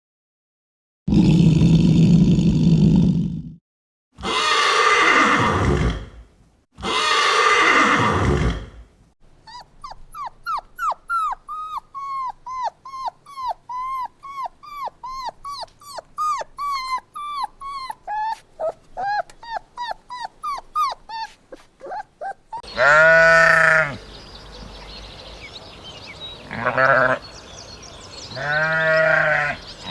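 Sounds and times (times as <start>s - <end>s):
rough breathy animal calls: 9.5s - 24.0s.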